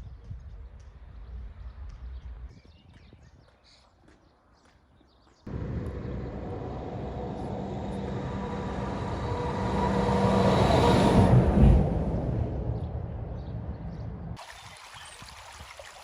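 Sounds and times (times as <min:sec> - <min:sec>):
vehicle passing by: 0:05.5 - 0:14.4.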